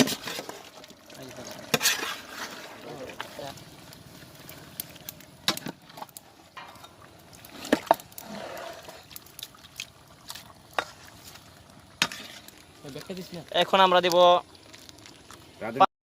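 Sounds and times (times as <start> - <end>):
wet stirring rustle: 0.0 - 15.9
utensils clattering against a pot: 1.5 - 3.3, 5.4 - 9.2, 12.0 - 12.6.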